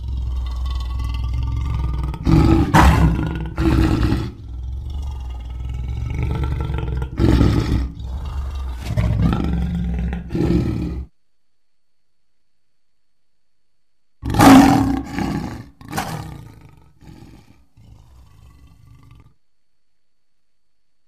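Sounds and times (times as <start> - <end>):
lion growling: 0.0 - 11.1, 14.2 - 19.4
lion roaring: 0.0 - 11.1, 14.2 - 19.4.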